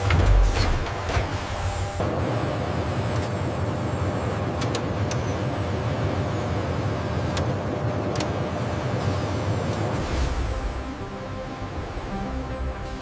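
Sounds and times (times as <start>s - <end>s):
low mechanical rumble and hum: 0.0s - 13.0s.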